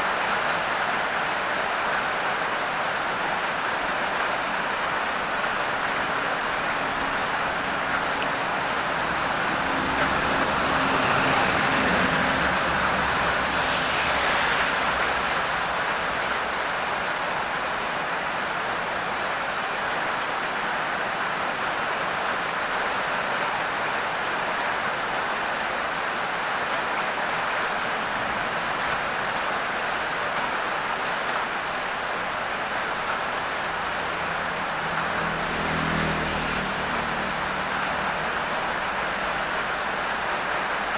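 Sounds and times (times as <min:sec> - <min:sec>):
heavy rain falling: 0:00.0 - 0:40.9
vehicle passing: 0:04.9 - 0:17.0, 0:33.3 - 0:40.9.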